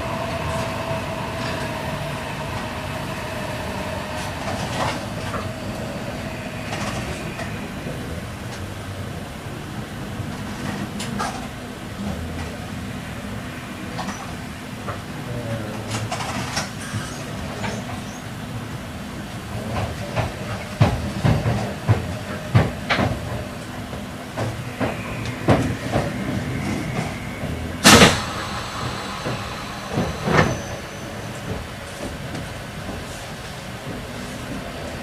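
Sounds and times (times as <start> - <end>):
train interior rumble: 0.0 - 35.0
wheels clunking over track: 19.6 - 34.8.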